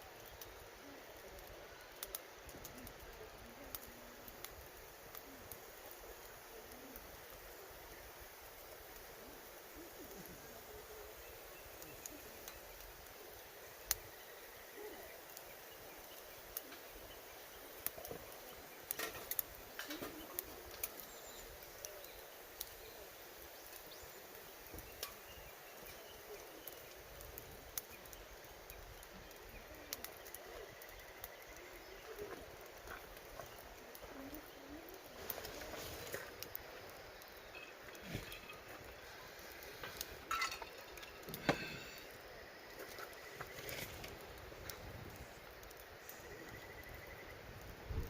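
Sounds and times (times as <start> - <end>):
campfire crackling: 0.0 - 48.0
outdoor hiss: 0.0 - 48.0
faint bird call: 14.0 - 17.7.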